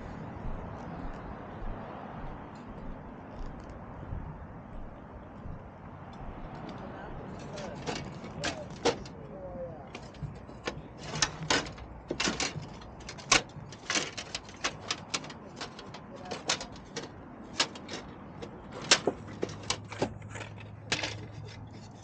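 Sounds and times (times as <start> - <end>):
sharp clicks and knocks: 4.8 - 9.2, 9.8 - 22.0.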